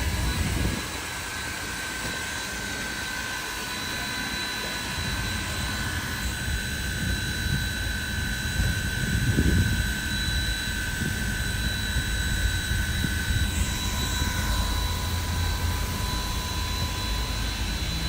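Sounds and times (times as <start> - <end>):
high whine: 0.0 - 18.0
steam locomotive roar and hiss: 0.0 - 18.0.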